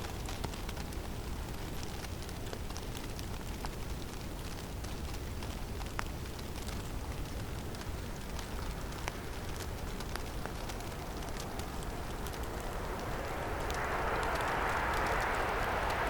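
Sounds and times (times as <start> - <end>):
falling snow ticking: 0.0 - 16.0
wind blowing: 6.9 - 16.0.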